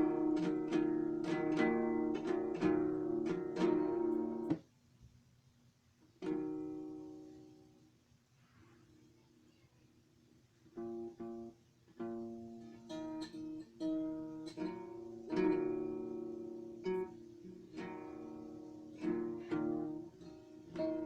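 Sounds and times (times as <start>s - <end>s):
acoustic guitar chords: 0.0s - 4.6s, 10.8s - 21.0s.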